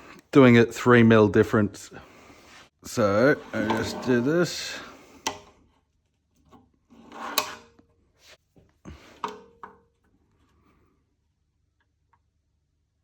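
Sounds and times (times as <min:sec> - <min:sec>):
drawer scraping on runners: 0:03.0 - 0:04.8, 0:06.9 - 0:07.7.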